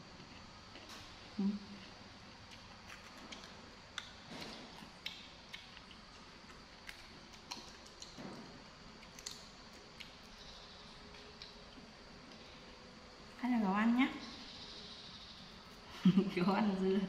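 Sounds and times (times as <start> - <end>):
cucumber being chewed: 1.8 - 8.2, 8.9 - 11.8.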